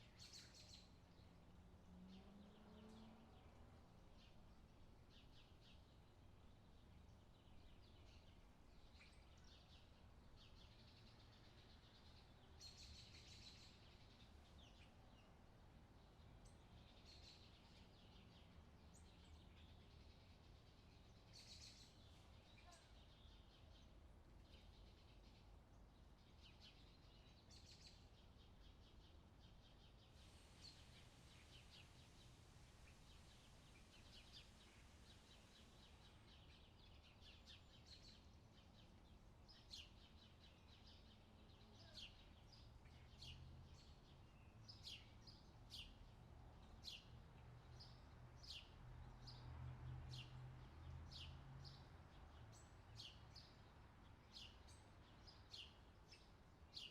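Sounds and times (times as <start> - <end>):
songbirds chirping and trilling: 0.0 - 56.9.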